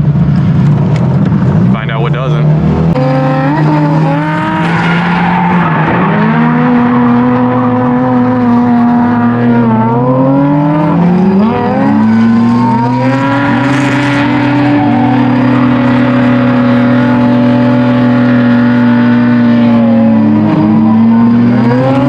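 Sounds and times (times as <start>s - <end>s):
rotary engine revving high: 0.0s - 22.0s.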